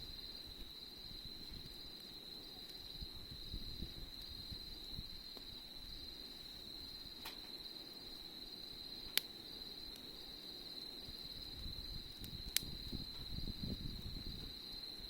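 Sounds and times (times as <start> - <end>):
insects trilling: 0.0 - 15.0
campfire pops: 0.1 - 5.6, 7.1 - 7.6, 9.0 - 10.5, 11.1 - 14.6.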